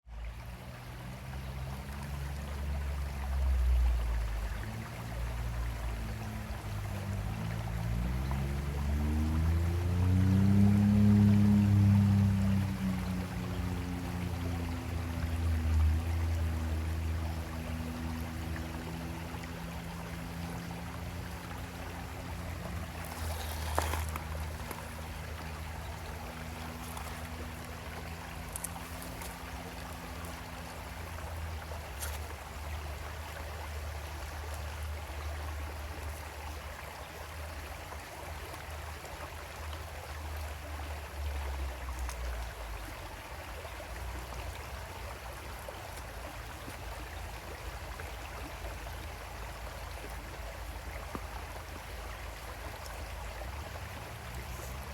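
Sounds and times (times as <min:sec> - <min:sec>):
creek flowing over stones: 0:00.0 - 0:54.9
low steady hum: 0:00.1 - 0:38.0.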